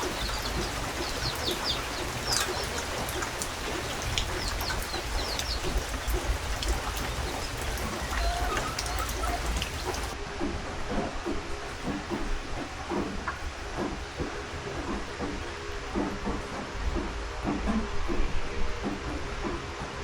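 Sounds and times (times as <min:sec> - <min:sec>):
birds chirping: 0:00.0 - 0:10.2
raindrop ticks: 0:00.0 - 0:10.2
steady rain: 0:00.0 - 0:10.2.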